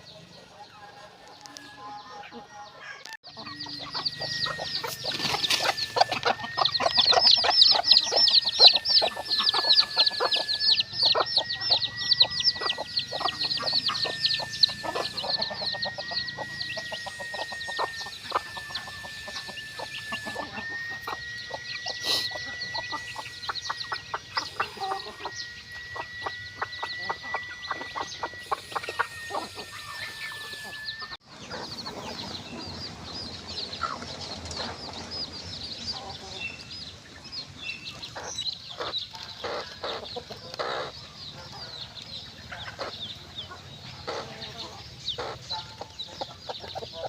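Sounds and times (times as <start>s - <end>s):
chickens clucking and peeping: 0.0s - 47.0s
steady high whine: 3.3s - 47.0s.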